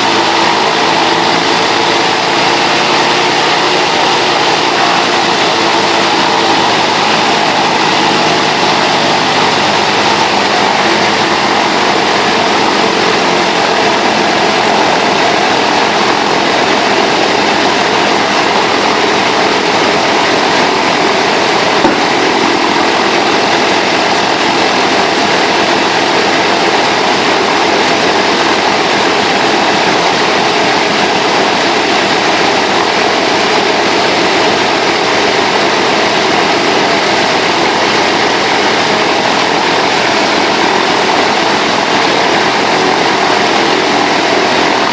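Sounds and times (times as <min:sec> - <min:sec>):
radial aircraft engine running: 0:00.0 - 0:44.9.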